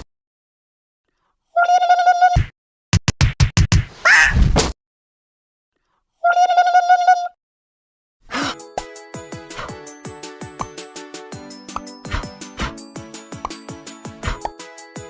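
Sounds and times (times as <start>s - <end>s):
music: 8.5s - 15.0s.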